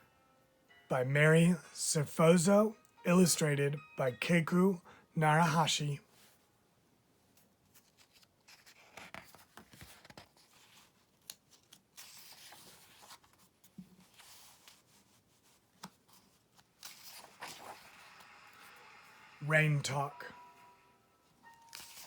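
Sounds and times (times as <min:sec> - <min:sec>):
light clicks of book handling: 0:07.3 - 0:18.2
book pages rustling: 0:07.3 - 0:19.4, 0:21.4 - 0:22.0.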